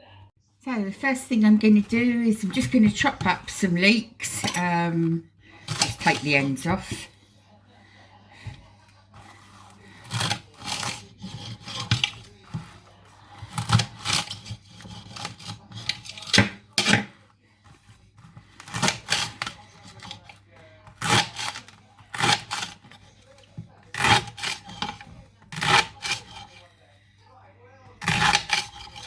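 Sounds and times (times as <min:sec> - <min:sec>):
knife chopping on board: 0:05.6 - 0:07.1, 0:09.2 - 0:17.2, 0:17.8 - 0:26.6, 0:28.0 - 0:29.0.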